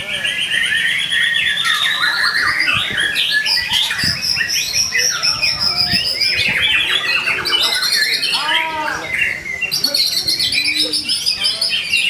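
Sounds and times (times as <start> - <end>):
songbird singing whistled trills: 0.0 - 8.4.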